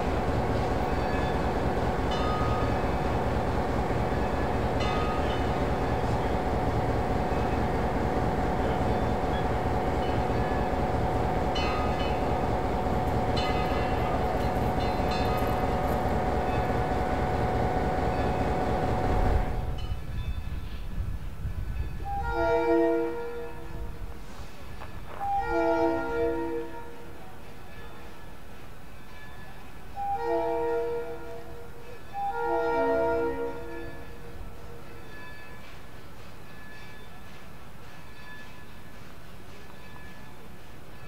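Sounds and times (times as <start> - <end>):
train rumbling: 0.0 - 41.0.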